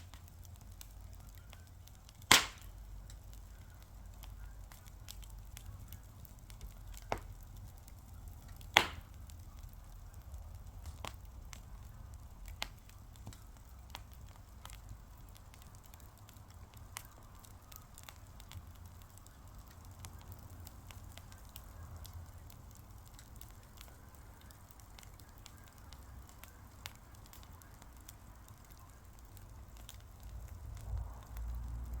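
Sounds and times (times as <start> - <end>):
wood fire crackling: 0.0 - 32.0
low steady rumble: 28.8 - 32.0.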